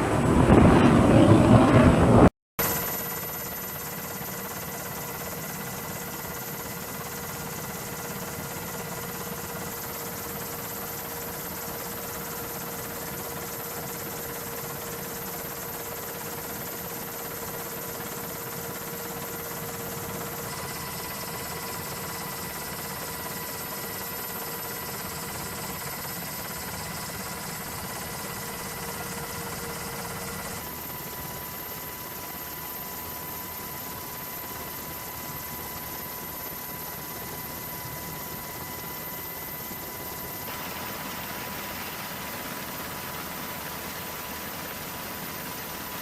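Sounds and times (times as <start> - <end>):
even rushing noise: 0.0 - 2.3
machinery hum: 0.0 - 3.7
constant whining tones: 0.0 - 46.0.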